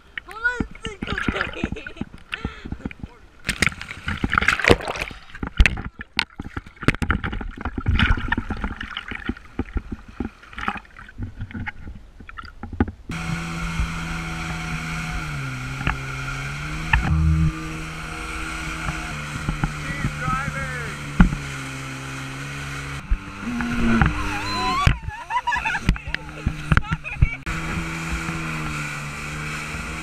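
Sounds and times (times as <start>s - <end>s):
jet ski engine running: 0.0s - 4.4s, 12.7s - 30.0s
water splashing and sloshing: 0.0s - 30.0s.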